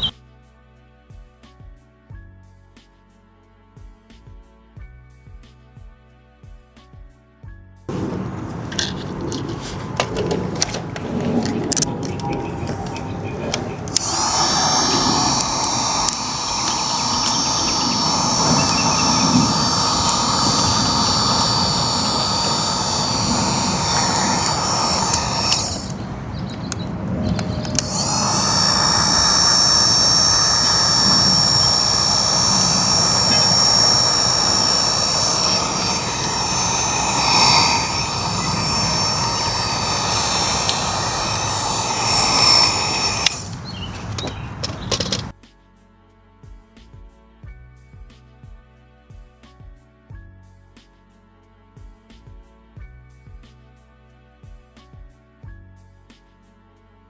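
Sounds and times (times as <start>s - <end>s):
electric blower motor whining: 7.9s - 45.3s.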